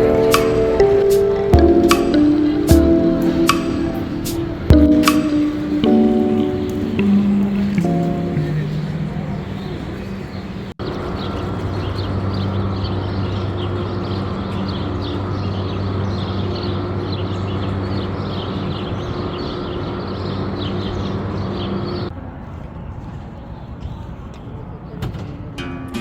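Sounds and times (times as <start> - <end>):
low mechanical hum: 0.0 - 22.1
small birds chirping: 0.0 - 22.1.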